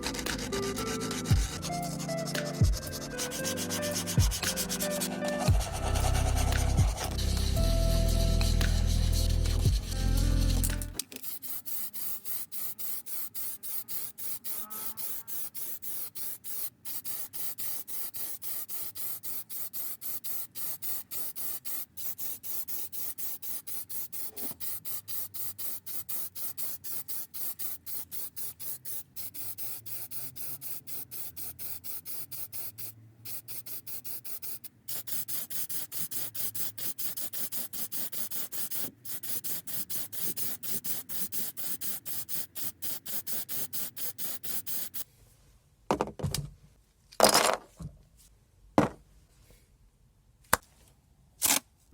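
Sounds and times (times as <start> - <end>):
rapid rubbing scrapes: 0.0 - 16.4.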